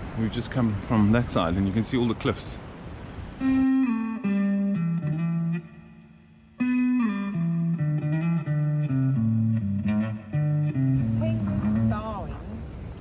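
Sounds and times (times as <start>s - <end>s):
plucked guitar phrases: 3.4s - 12.4s.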